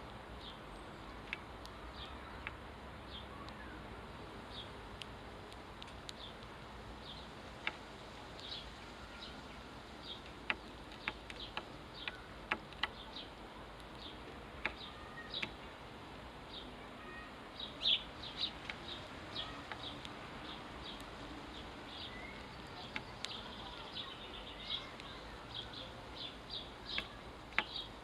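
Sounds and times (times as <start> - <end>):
sparrows chirping: 0.3 - 4.8, 5.8 - 28.0
sharp clicks: 10.0 - 15.8, 18.4 - 28.0.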